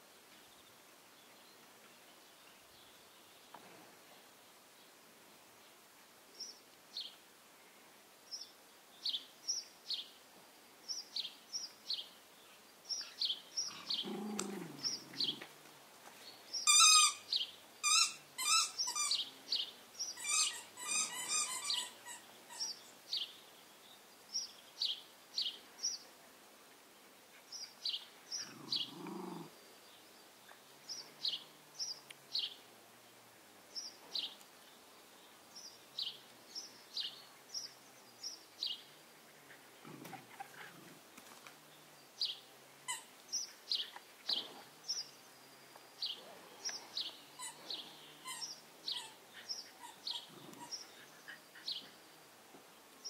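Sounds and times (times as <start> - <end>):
small songbird chirping: 10.8 - 15.5, 16.2 - 26.1, 27.5 - 40.0, 41.6 - 53.0
high squealing calls: 16.6 - 19.3, 20.1 - 22.8, 47.4 - 50.9.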